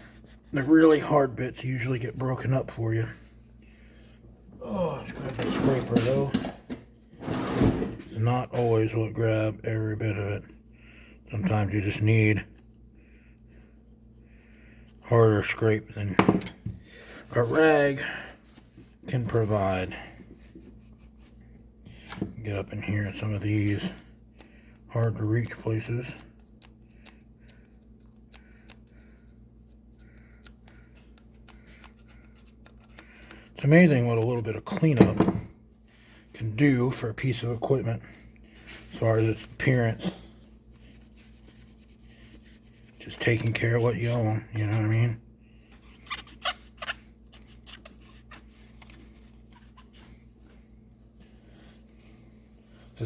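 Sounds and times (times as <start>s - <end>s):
scrubbing and scraping on plastic: 38.5s - 45.1s, 45.7s - 50.6s.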